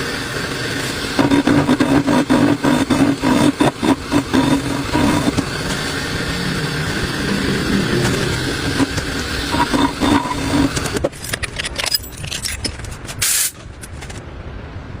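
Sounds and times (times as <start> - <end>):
loud rush of noise: 0.0 - 11.2
motorcycle engine running: 1.1 - 11.0
metallic clicks and jangles: 11.0 - 13.2.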